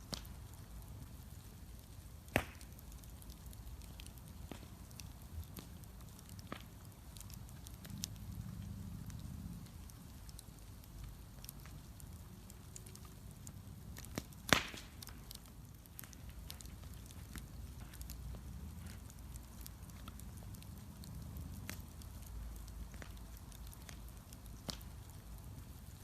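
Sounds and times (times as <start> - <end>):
bonfire crackling and popping: 0.0 - 26.0
low rumble: 7.6 - 10.3.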